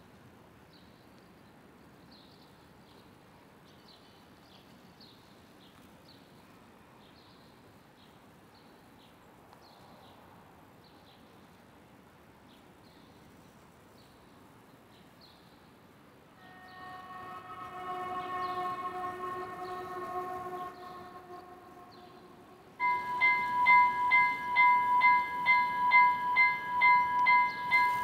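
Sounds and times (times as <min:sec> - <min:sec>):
faint outdoor ambience: 0:00.0 - 0:28.0
bird chirping: 0:16.4 - 0:28.0.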